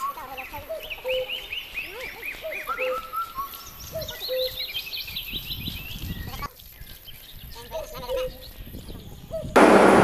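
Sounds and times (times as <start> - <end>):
birds chirping: 0.0 - 9.6.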